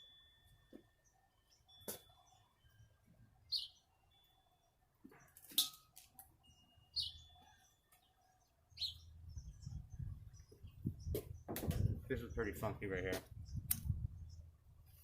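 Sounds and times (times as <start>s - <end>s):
small bird chirping: 0.9s - 5.7s, 6.4s - 15.0s
sharp click: 13.1s - 13.9s.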